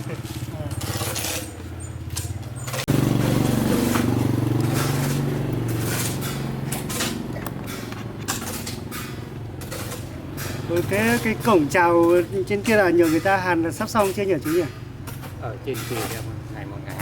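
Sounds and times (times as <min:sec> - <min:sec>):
engine running steadily: 0:00.0 - 0:12.4.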